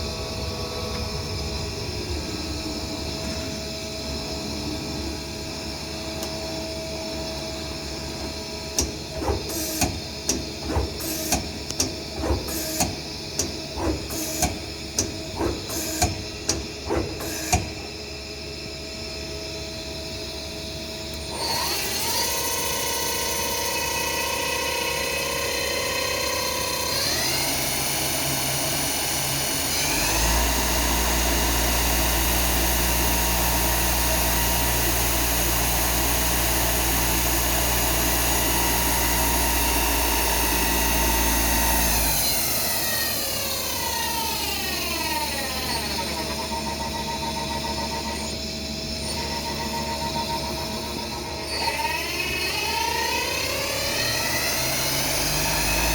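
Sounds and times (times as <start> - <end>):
lathe spindle whine: 0.0 - 55.9
sharp mechanical clunks: 8.7 - 17.8.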